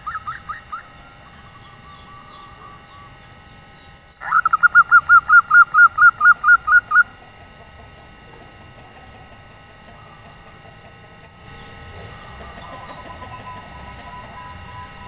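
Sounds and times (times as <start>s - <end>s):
dove rapid staccato call: 0.0s - 3.2s, 4.2s - 15.0s.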